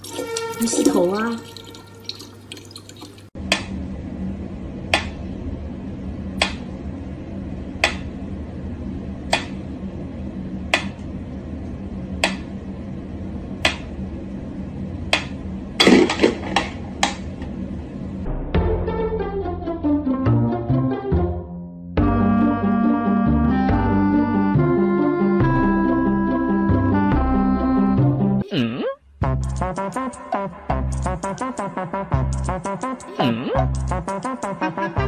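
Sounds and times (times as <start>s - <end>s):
low hum: 3.3s - 20.0s.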